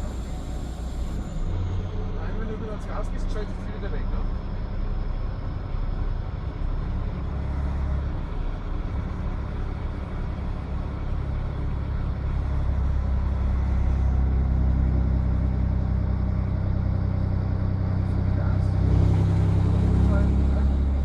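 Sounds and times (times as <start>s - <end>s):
truck diesel engine drone: 0.0s - 21.0s.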